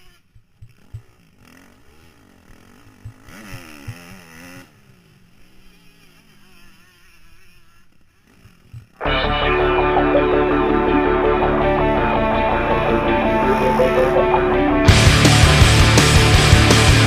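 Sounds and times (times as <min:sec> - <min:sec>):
dirt bike engine revving: 0:00.0 - 0:17.0
loud music: 0:09.0 - 0:17.0.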